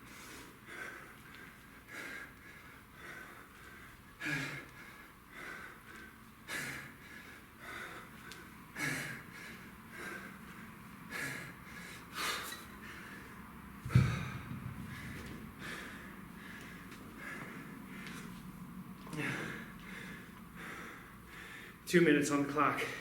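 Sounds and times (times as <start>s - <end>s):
man breathing hard: 0.0s - 18.5s, 19.1s - 21.9s, 22.8s - 23.0s
loud low thump: 13.8s - 15.4s.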